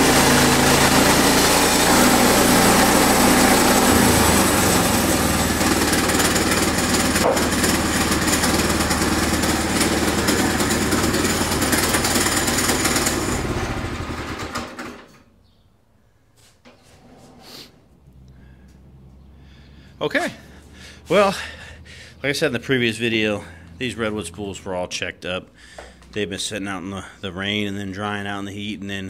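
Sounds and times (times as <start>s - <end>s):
sawmill running: 0.0s - 15.2s, 20.0s - 24.8s.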